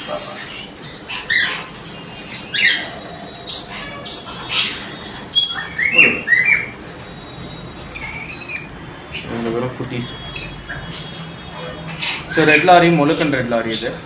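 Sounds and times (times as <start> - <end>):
parrots squawking: 0.0 - 14.0.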